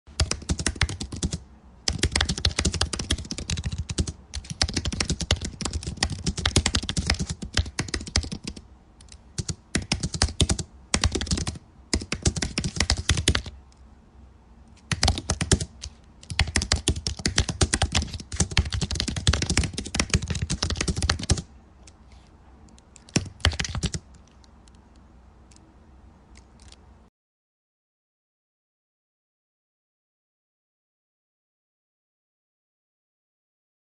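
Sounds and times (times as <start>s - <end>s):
computer keyboard typing: 0.1s - 13.6s, 14.8s - 22.0s, 22.7s - 25.7s, 26.3s - 26.8s.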